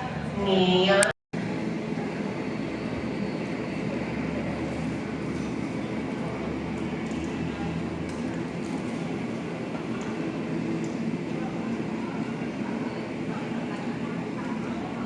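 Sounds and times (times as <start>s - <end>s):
rumbling vehicle noise: 1.4s - 11.3s.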